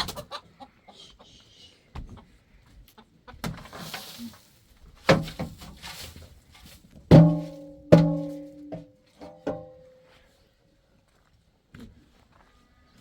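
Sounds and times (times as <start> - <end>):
knocks on hollow object: 7.1 - 8.8.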